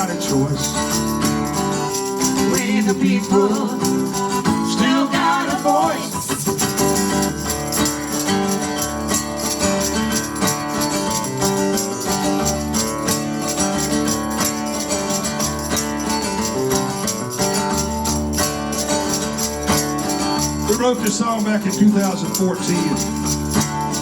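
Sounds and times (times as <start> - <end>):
live band playing instrumental: 0.6 - 24.0.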